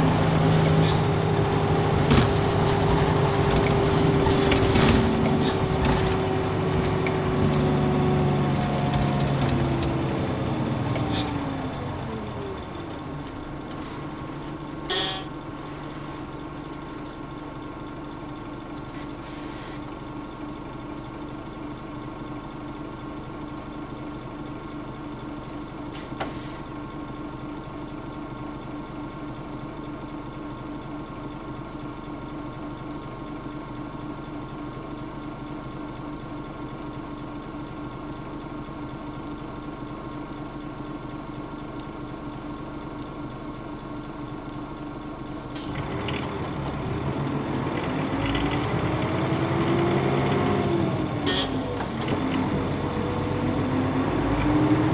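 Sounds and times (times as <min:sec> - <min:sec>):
bus diesel engine running: 0:00.0 - 0:54.9
short air hisses: 0:19.0 - 0:19.8, 0:26.0 - 0:26.6.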